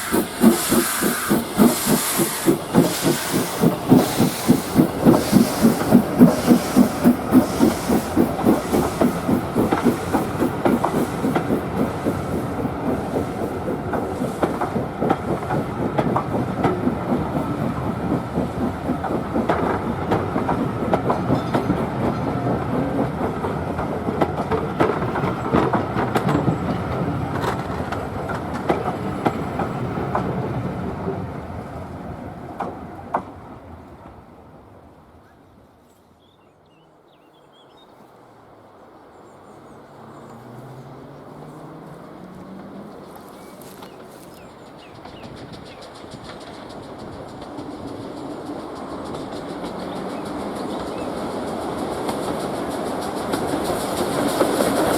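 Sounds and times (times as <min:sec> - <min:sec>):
wheels clicking on rail joints: 0:00.0 - 0:30.5, 0:39.8 - 0:54.9
steam locomotive exhaust beating: 0:00.0 - 0:30.6, 0:40.3 - 0:54.9
train coaches rumbling by: 0:00.0 - 0:35.7, 0:37.9 - 0:54.9.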